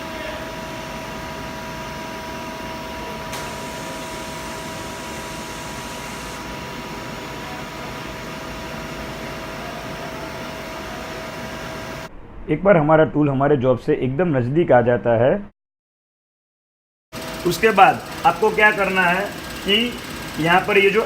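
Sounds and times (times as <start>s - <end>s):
lathe machine hum and hiss: 0.0s - 12.1s, 17.2s - 21.0s
machine whining tones: 0.0s - 12.5s, 17.2s - 21.0s.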